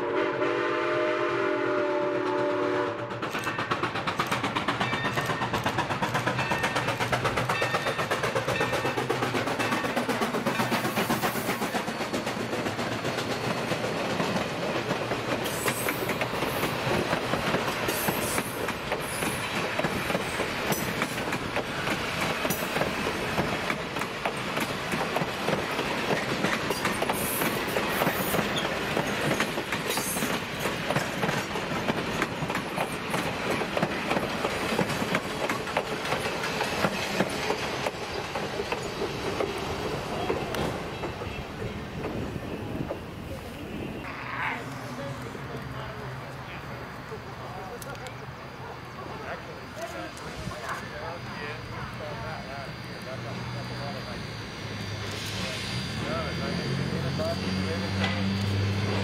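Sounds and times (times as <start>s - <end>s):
train wheels clickety-clack: 2.2s - 43.1s, 54.8s - 59.0s.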